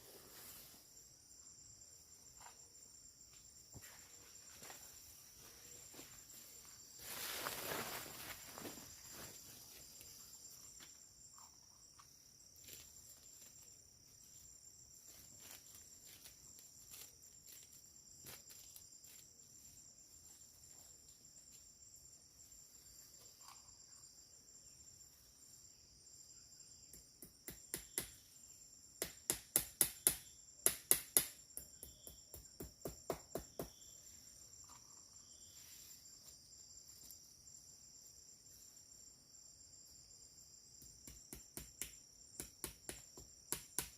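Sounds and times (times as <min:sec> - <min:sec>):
insects chirring: 0:00.0 - 0:43.9.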